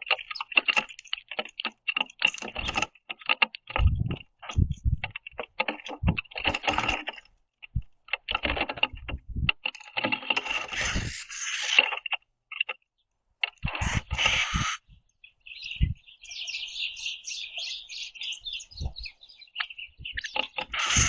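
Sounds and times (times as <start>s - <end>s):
bird feet scratching on wood: 0.0s - 12.8s, 20.2s - 21.0s
beaks pecking and cracking seed: 0.0s - 15.3s, 17.5s - 21.0s.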